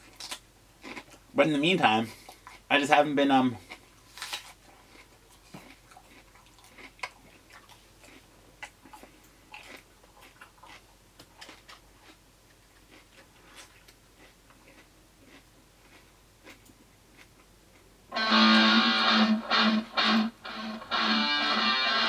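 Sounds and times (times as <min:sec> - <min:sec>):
person chewing crunchy food: 0:00.0 - 0:01.4, 0:02.1 - 0:02.7, 0:03.6 - 0:17.9.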